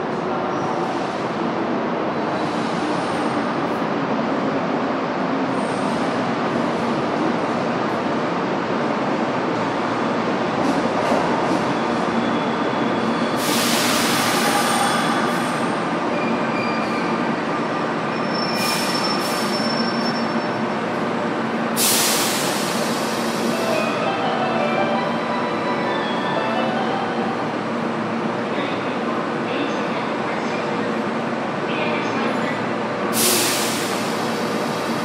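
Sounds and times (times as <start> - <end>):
train rolling noise: 0.0 - 35.0
short sharp hisses: 21.8 - 23.6.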